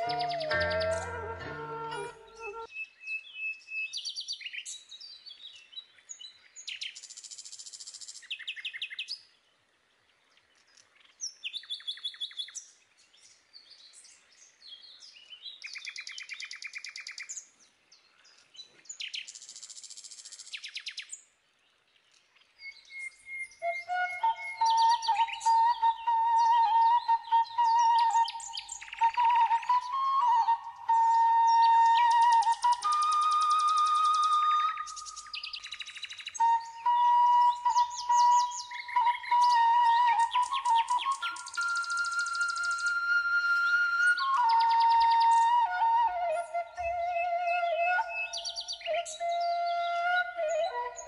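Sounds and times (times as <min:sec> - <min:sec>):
music: 0:00.0 - 0:02.7
high bird chirps: 0:00.0 - 0:03.0
songbird trills: 0:00.0 - 0:09.2, 0:10.3 - 0:21.3, 0:22.1 - 0:51.0.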